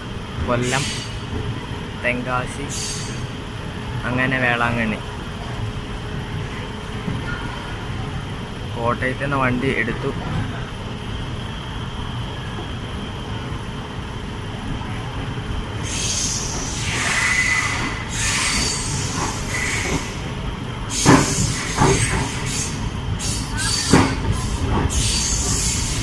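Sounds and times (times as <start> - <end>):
train wheels rumbling on rail: 0.0 - 26.0
wheels squealing and hissing: 0.7 - 1.2, 2.7 - 3.3, 15.8 - 20.3, 20.9 - 26.0.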